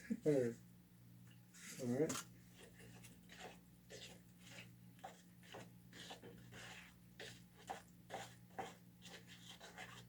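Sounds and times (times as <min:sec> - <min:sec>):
low electrical hum: 0:00.0 - 0:10.0
palette knife scraping cement: 0:02.6 - 0:10.0.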